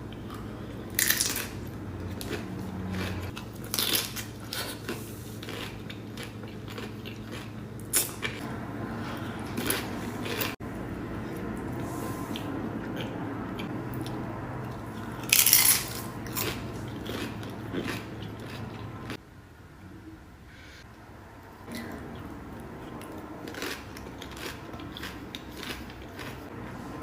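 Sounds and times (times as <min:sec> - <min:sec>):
chewing: 0:00.1 - 0:08.4, 0:09.1 - 0:10.6, 0:12.3 - 0:19.2, 0:21.7 - 0:26.6
chips crunching: 0:01.0 - 0:08.4, 0:15.0 - 0:18.9, 0:23.0 - 0:26.4
low hum: 0:05.1 - 0:27.0.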